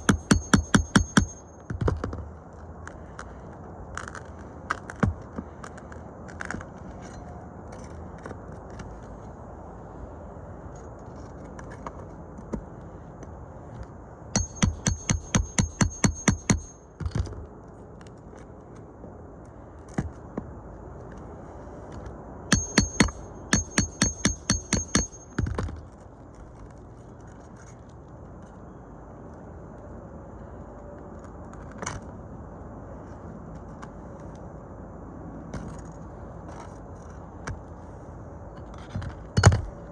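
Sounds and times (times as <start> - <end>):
hammer blows: 0.0 - 2.2, 14.4 - 17.2, 22.5 - 25.8.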